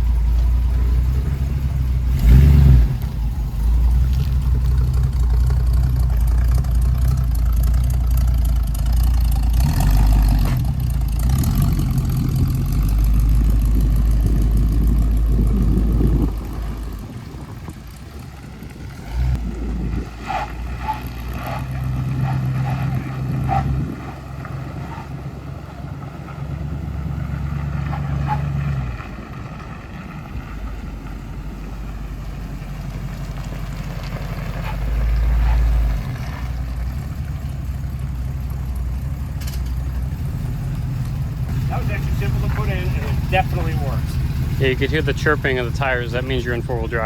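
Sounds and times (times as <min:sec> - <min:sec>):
tire chirps: 0:00.0 - 0:47.0
truck engine pulling: 0:00.0 - 0:47.0.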